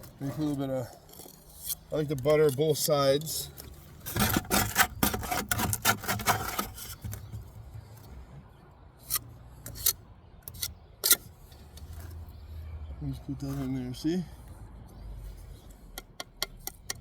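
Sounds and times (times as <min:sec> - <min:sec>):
trowel scraping mortar: 0:04.1 - 0:07.0
trowel tapping brick: 0:16.0 - 0:17.0.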